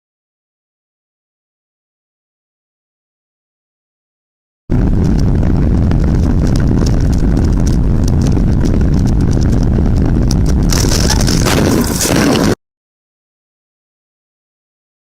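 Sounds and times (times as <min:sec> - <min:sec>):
car engine and road rumble: 0:04.8 - 0:12.5.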